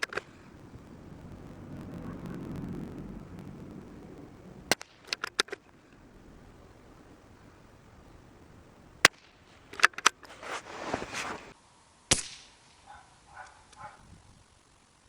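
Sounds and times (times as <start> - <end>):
rifle bolt clicking and rattling: 0.0 - 0.3, 4.7 - 5.7, 9.0 - 10.4.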